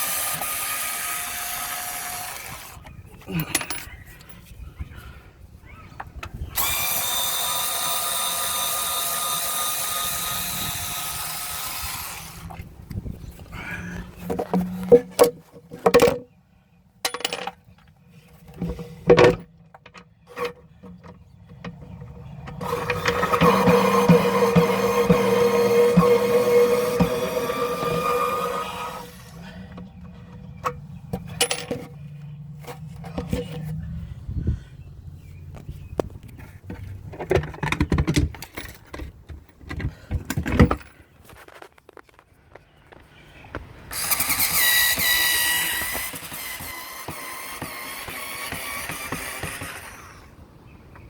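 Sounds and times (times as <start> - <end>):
small parts and tools rattling: 2.2 - 4.6, 14.0 - 16.3, 17.0 - 25.0, 29.7 - 33.8, 36.2 - 42.3
tools and metal parts clicking: 3.3 - 4.5, 17.0 - 17.9, 30.0 - 32.1, 36.7 - 41.6.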